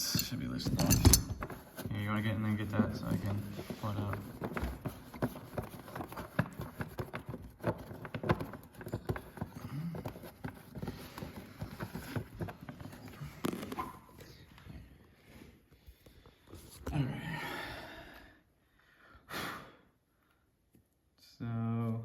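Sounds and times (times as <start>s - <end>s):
clicks and knocks of tools: 0.0s - 1.5s.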